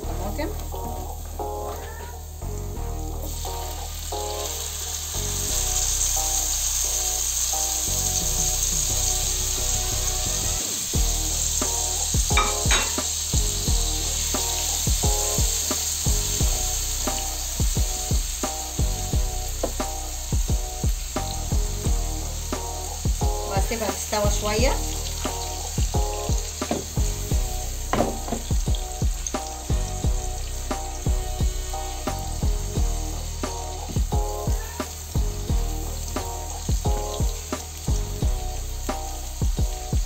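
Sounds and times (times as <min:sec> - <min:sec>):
background music: 0:00.0 - 0:40.0
tomatoes sizzling in oil: 0:00.0 - 0:40.0
spatula scraping pan: 0:12.3 - 0:13.2.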